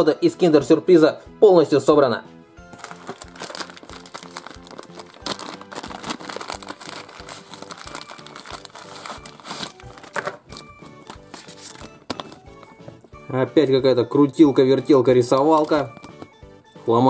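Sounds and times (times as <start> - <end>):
background music: 0.0 - 17.0
plastic packaging crinkling: 2.7 - 12.8.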